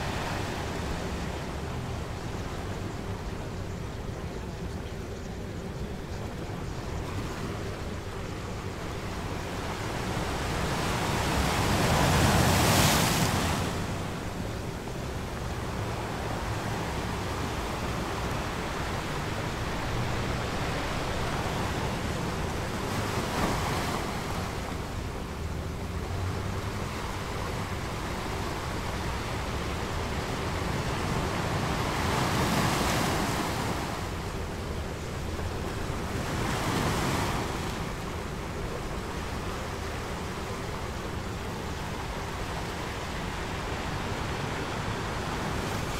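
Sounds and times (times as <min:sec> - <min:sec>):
ocean waves breaking: 0:09.2 - 0:45.9.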